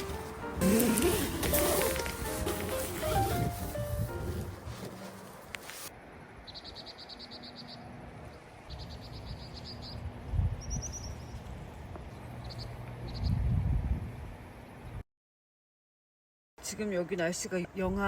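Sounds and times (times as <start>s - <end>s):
wind rumble on microphone: 3.0s - 5.2s, 9.2s - 15.0s
small bird singing trills: 8.7s - 10.0s, 10.6s - 11.4s.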